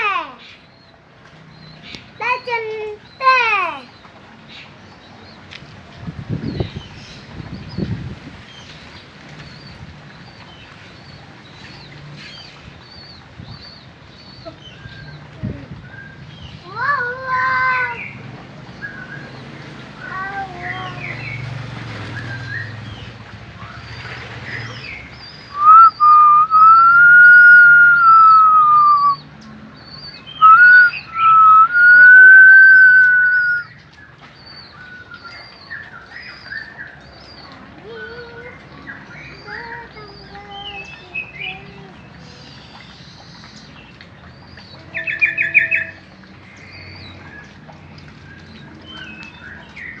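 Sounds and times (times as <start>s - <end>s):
soft bird calls: 0.0s - 50.0s
faint bird calls: 22.1s - 29.2s, 30.0s - 33.8s
long whistled tone: 25.5s - 29.2s, 30.4s - 33.7s
short high chirps: 25.6s - 29.2s, 30.4s - 33.6s.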